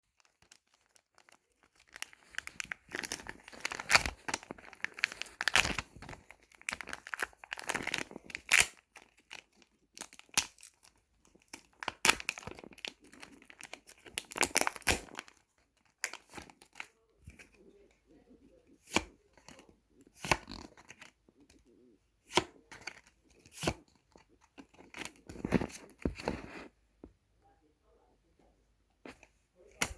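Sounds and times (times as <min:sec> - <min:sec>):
paper crinkling and tearing: 0:00.1 - 0:17.5.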